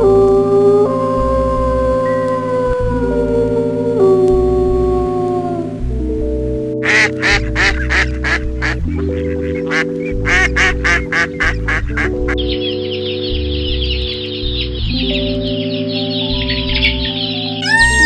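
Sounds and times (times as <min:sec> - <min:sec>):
background music: 0:00.0 - 0:18.0
ducks quacking: 0:06.8 - 0:12.5
high chick peeping: 0:17.6 - 0:18.0.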